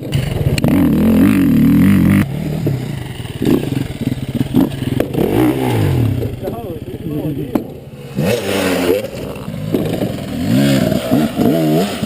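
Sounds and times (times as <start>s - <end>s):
dirt bike engine revving: 0.0s - 12.0s
knocks and clatter: 3.4s - 5.4s, 7.4s - 7.8s, 8.9s - 11.6s.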